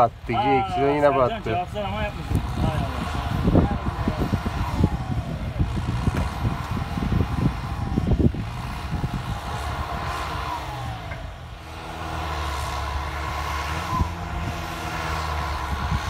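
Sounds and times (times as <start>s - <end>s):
tractor diesel engine running: 0.0s - 16.0s
sharp engine knocks: 6.0s - 6.8s.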